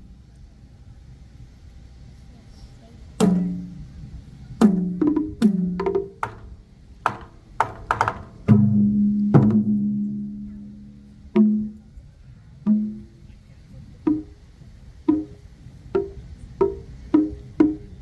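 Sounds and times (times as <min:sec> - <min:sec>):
pitched drum strokes ringing: 0:03.2 - 0:18.0.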